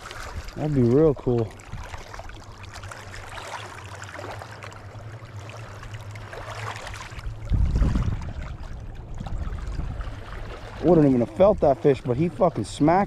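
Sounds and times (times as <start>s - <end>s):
wind buffeting microphone: 7.2s - 13.0s.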